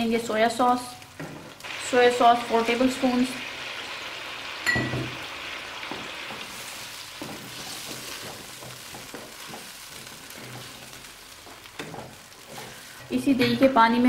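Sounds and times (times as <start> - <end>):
chicken sizzling in a wok: 0.0 - 14.0
spatula scraping a wok: 5.8 - 13.4.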